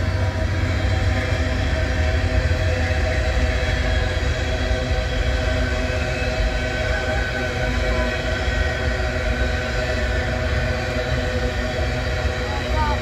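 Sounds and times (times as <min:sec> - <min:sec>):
rumble of wheels on rail: 0:00.0 - 0:13.0.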